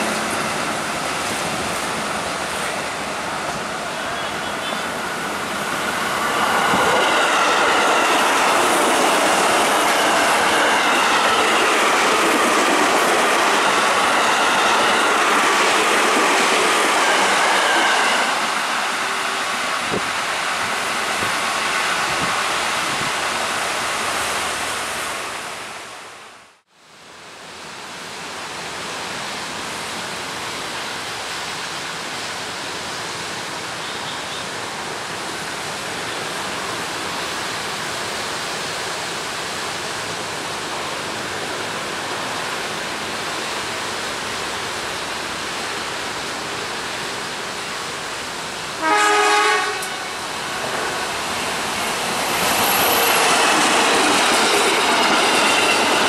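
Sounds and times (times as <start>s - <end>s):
train rolling rumble: 0.0s - 25.8s, 34.5s - 56.0s.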